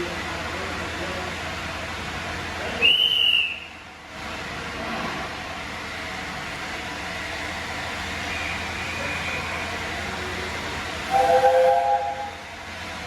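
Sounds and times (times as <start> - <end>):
steady steam hiss: 0.0 - 13.0
steam locomotive whistle: 2.8 - 3.8, 11.1 - 12.4.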